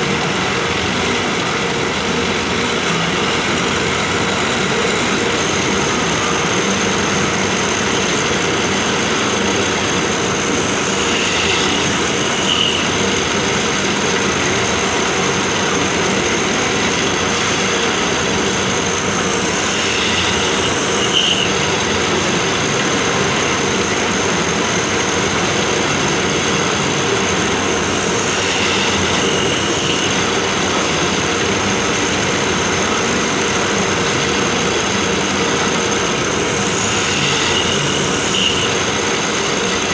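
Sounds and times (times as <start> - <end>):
drilling machine high whine: 0.0 - 39.9
bright cutting sound: 9.5 - 14.2, 18.0 - 22.8, 27.1 - 32.1, 36.4 - 39.0.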